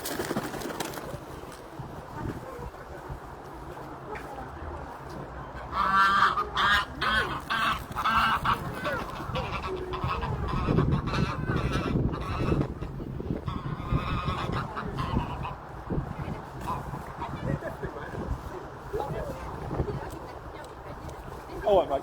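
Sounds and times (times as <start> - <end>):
waterfowl honking: 5.7 - 15.6.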